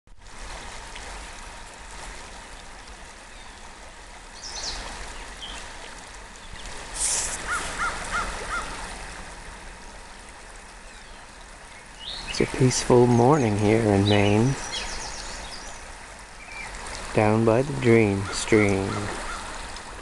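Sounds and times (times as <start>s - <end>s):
stream running: 0.1s - 20.0s
brief hissing burst: 7.0s - 7.5s
crow cawing: 7.4s - 8.8s, 18.9s - 19.5s.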